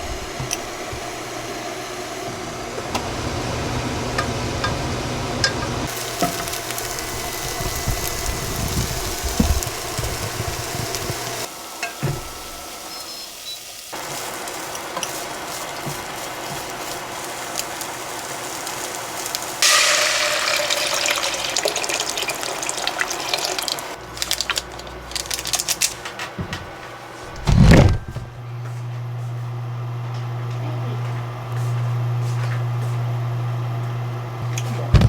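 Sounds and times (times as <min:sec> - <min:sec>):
tap water running into sink: 0:19.6 - 0:24.0
low electric hum: 0:27.2 - 0:35.0
loud thump: 0:27.4 - 0:28.3.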